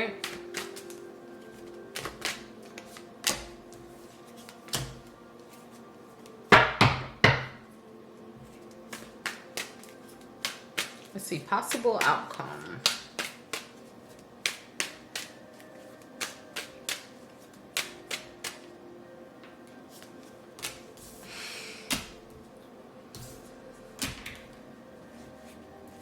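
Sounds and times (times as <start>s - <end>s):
cards snapping and tapping: 0.2s - 3.6s, 4.4s - 5.1s, 8.7s - 11.1s, 11.7s - 13.8s, 14.4s - 18.7s, 20.0s - 21.0s, 21.9s - 22.2s, 24.0s - 24.6s
cards rustling slide: 0.2s - 6.4s, 8.4s - 11.1s, 12.8s - 18.7s.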